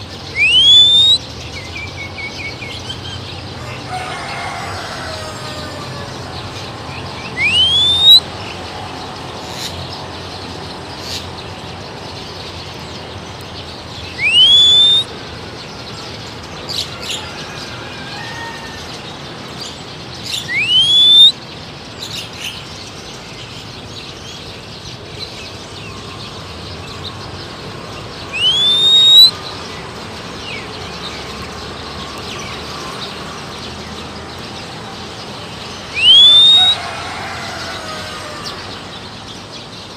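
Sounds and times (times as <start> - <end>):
high bird chirps: 0.0 - 2.6, 7.2 - 8.3, 14.0 - 15.1, 20.3 - 21.4, 28.3 - 29.4, 35.8 - 36.8
person whistling rising notes: 0.4 - 1.2, 7.4 - 8.2, 14.2 - 15.1, 20.5 - 21.3, 28.3 - 29.3, 36.0 - 36.8.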